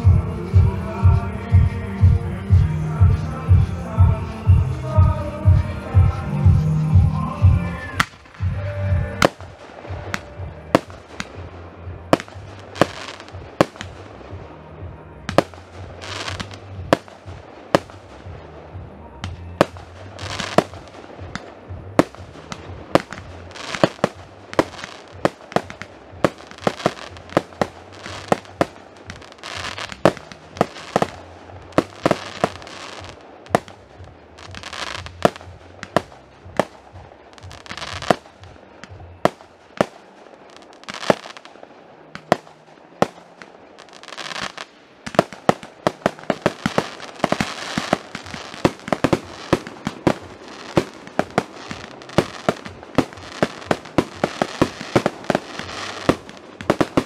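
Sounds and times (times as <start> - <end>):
fireworks bangs: 0.0 - 57.0
fireworks crackling hiss: 0.0 - 57.0.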